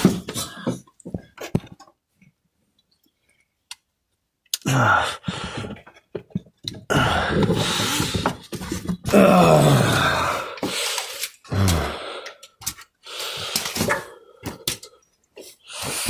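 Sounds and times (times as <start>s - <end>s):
man groaning and exhaling: 4.6s - 5.7s, 6.9s - 8.3s, 9.1s - 10.7s, 11.5s - 12.4s.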